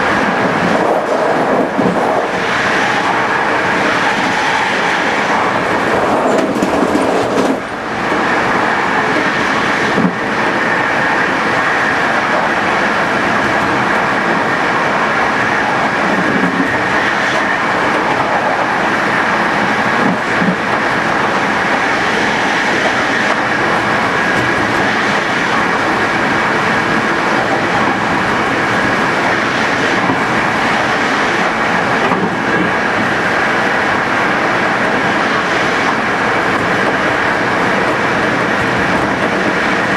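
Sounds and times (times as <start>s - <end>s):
train wheels on rails: 0.0s - 39.9s.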